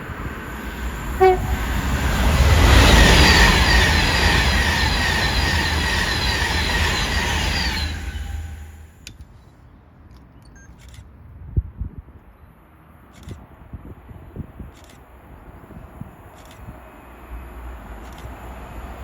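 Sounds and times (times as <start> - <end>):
train passing at speed: 0.0 - 9.0, 15.6 - 19.0
short horn toot: 1.2 - 1.8
train wheels clattering: 1.2 - 8.7.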